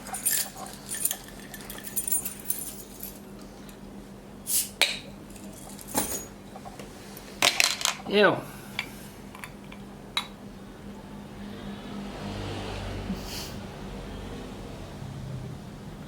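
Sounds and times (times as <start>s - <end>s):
glass and metal clinking: 0.0s - 3.2s, 5.3s - 6.7s.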